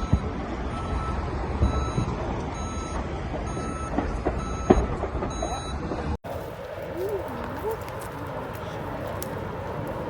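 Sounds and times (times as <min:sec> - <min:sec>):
reversing alarm beeping: 0:00.0 - 0:05.9.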